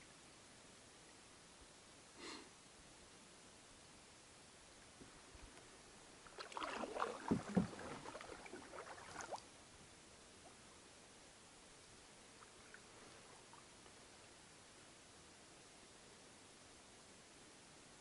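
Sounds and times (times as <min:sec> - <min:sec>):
faint steady hiss: 0:00.0 - 0:18.0
paddle splashing water: 0:06.2 - 0:09.5.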